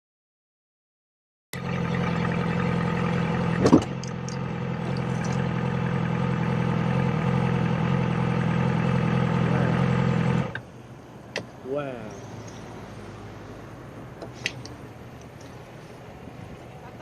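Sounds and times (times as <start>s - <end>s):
motorcycle engine running: 1.6s - 10.6s.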